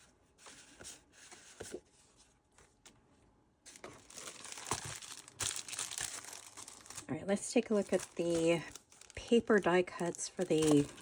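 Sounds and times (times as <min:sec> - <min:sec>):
paper rustling and tapping: 0:03.7 - 0:07.0, 0:10.0 - 0:11.0
packaging crinkling: 0:03.7 - 0:11.0.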